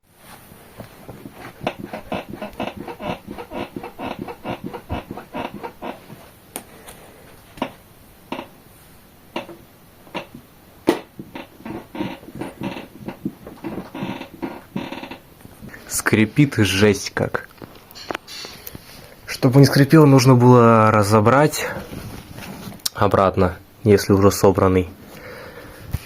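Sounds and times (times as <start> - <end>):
chair creaking and squeaking: 1.1 - 6.3, 7.6 - 8.6, 9.4 - 16.2, 17.4 - 19.9.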